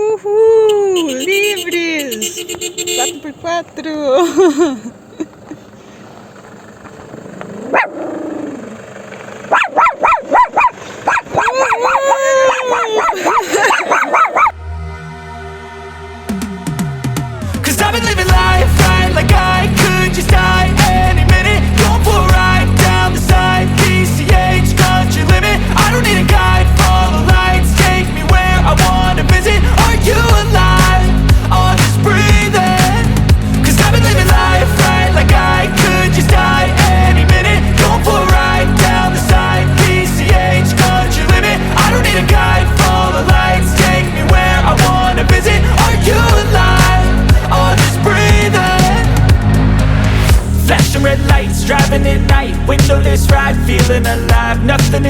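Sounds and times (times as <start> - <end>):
dog yelping and whining: 7.6 - 8.6, 9.5 - 14.5
pop music with drums: 16.3 - 55.0.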